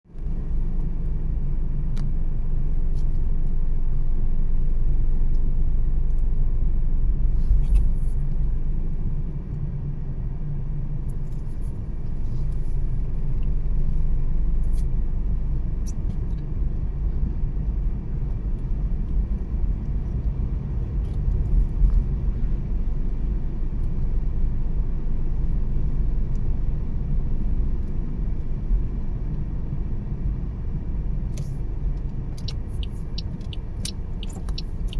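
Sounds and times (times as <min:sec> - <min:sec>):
car tyres and engine rumble: 0:00.0 - 0:34.9.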